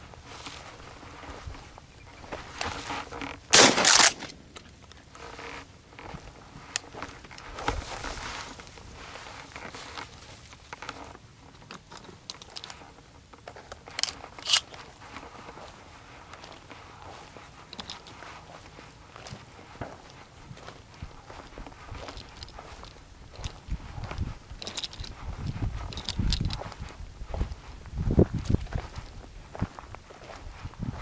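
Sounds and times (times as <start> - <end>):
footsteps crunching on dry ground: 0.0 - 31.0
shotgun blast: 3.5 - 4.4
sharp clicks: 3.6 - 4.7.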